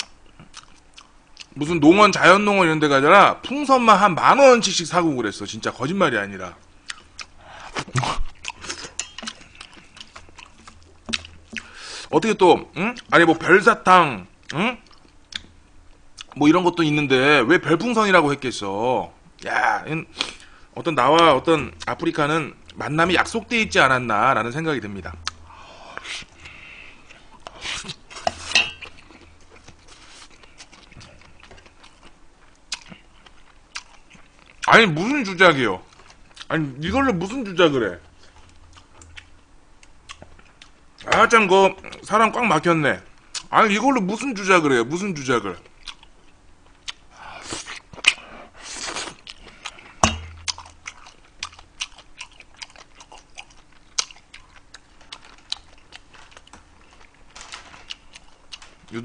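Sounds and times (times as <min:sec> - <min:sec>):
person chewing with mouth clicks: 0:00.0 - 0:01.6, 0:06.8 - 0:12.1, 0:16.2 - 0:16.4, 0:25.2 - 0:34.7, 0:38.1 - 0:41.1, 0:45.6 - 0:57.2, 0:57.8 - 0:58.8.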